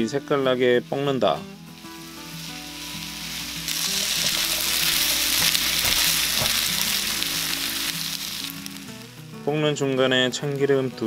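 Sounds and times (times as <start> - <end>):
food sizzling in oil: 0.0 - 11.0
spatula stirring in pan: 1.7 - 8.3.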